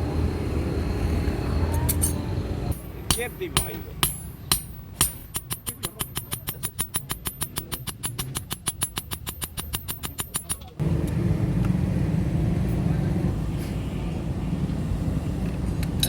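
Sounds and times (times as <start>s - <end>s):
sharp strikes: 2.0s - 10.8s
fast even taps: 3.1s - 10.8s
low motor hum: 10.8s - 13.5s.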